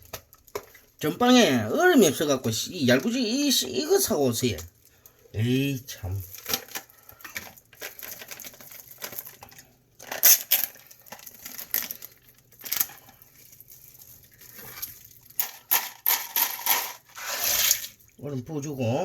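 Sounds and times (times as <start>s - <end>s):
plastic crinkling: 0.0s - 18.2s
ice cubes clinking in bag: 6.0s - 18.2s.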